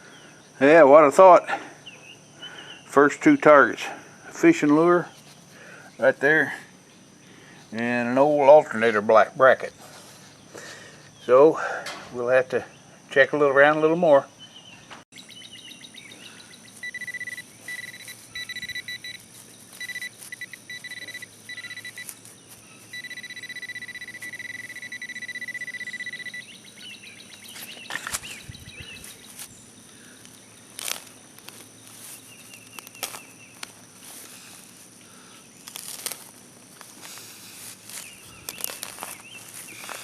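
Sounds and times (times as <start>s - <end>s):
metal detector beeping: 16.6s - 29.5s, 35.6s - 40.0s.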